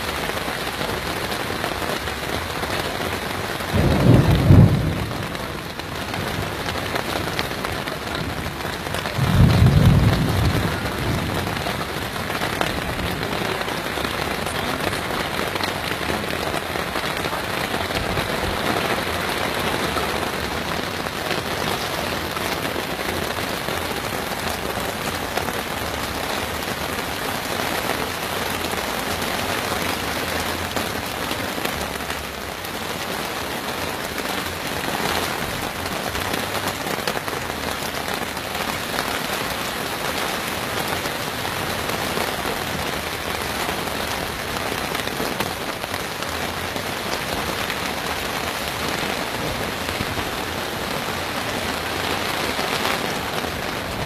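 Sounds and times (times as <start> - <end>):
heavy rain pouring: 0.0 - 54.0
low thunder rumbles: 3.5 - 25.8.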